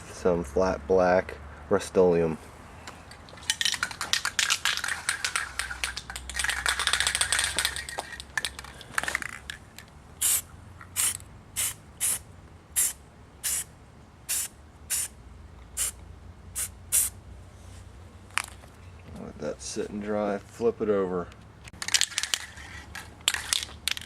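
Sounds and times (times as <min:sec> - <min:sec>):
spray can rattling: 0:03.3 - 0:12.2, 0:12.8 - 0:13.6, 0:14.3 - 0:15.1, 0:15.8 - 0:16.0, 0:16.6 - 0:17.1, 0:21.8 - 0:24.0
short spray bursts: 0:10.2 - 0:12.2, 0:12.8 - 0:13.7, 0:14.3 - 0:15.1, 0:15.8 - 0:16.0, 0:16.6 - 0:17.2
spray paint hissing: 0:10.2 - 0:12.2, 0:12.8 - 0:13.7, 0:14.3 - 0:15.1, 0:15.7 - 0:17.2.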